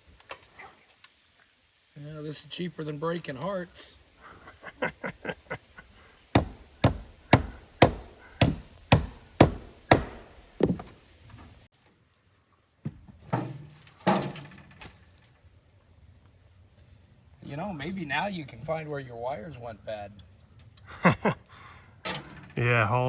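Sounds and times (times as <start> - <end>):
hammer striking wood: 6.3 - 11.0.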